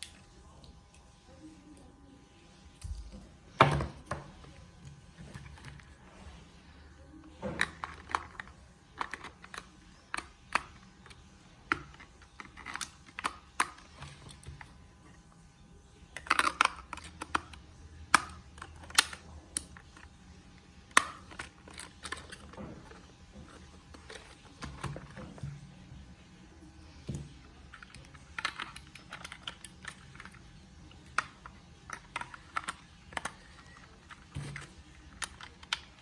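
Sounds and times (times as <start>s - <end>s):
plastic clicks and taps: 26.9s - 36.0s.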